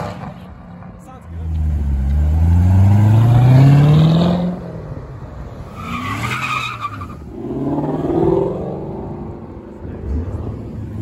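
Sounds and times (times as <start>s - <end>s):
car engine accelerating: 1.4s - 5.0s
car engine revving: 1.5s - 4.9s
tire squeal: 5.7s - 7.5s.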